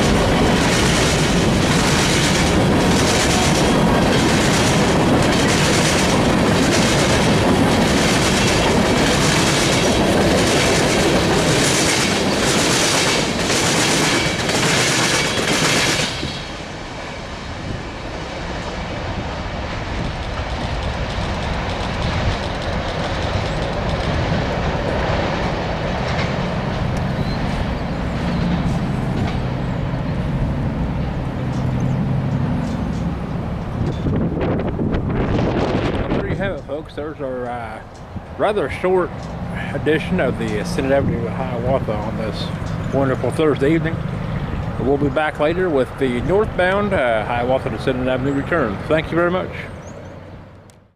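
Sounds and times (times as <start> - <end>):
train wheels clacking over rails: 0.0 - 34.3, 35.0 - 50.0
low rumble of receding train: 0.0 - 50.9
wind on microphone: 33.0 - 36.9.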